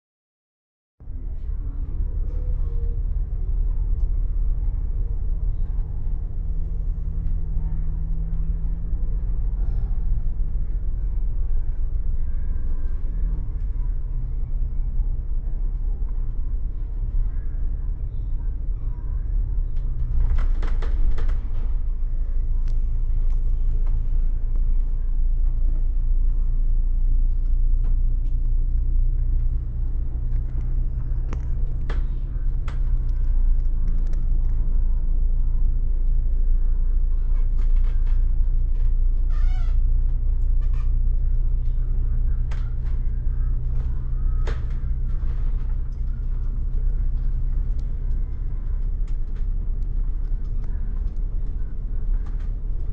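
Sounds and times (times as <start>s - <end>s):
bus engine and road rumble: 1.0s - 52.9s.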